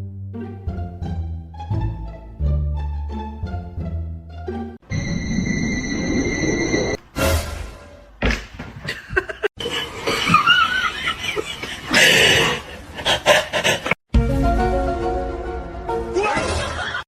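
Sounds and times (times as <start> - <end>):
people laughing: 8.9 - 14.0, 16.3 - 17.0.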